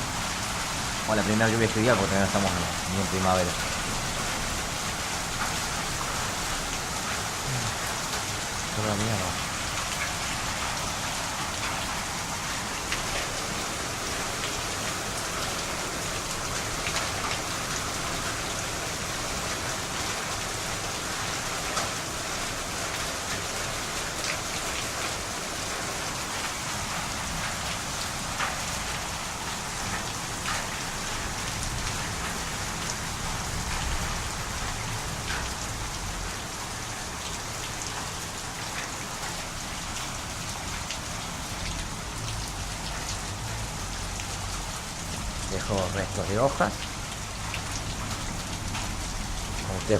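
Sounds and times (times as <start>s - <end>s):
heavy rain pouring: 0.0s - 49.9s.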